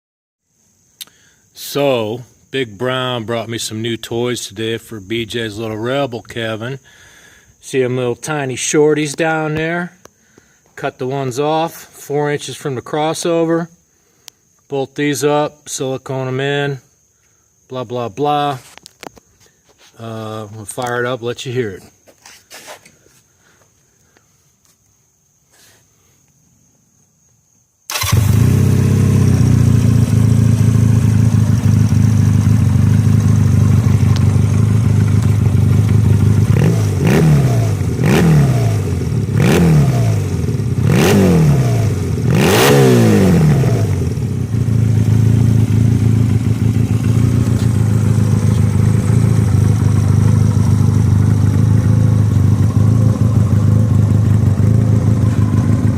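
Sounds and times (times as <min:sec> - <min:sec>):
trike engine starting and revving: 0:27.9 - 0:55.9.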